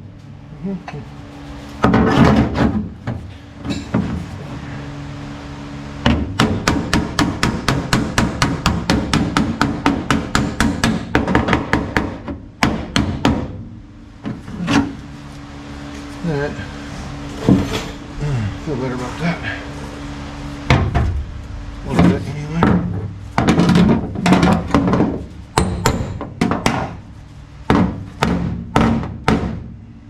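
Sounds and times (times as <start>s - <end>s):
steady low hum: 0.0s - 30.0s
hammer striking sheet metal: 21.8s - 27.0s.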